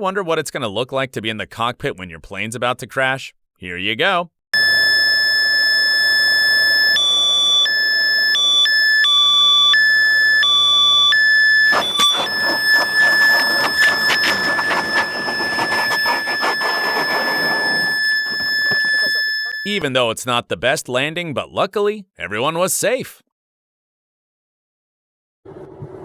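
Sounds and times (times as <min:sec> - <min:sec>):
cockpit warning alarm: 0:04.6 - 0:19.8.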